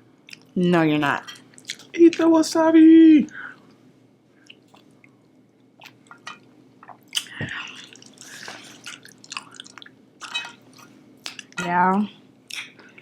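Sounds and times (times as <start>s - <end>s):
wet chewing: 6.8s - 10.0s.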